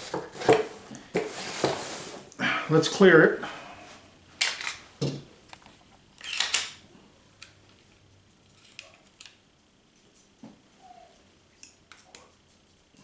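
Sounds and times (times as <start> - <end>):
pistol slide racking with snap: 6.2 - 6.8.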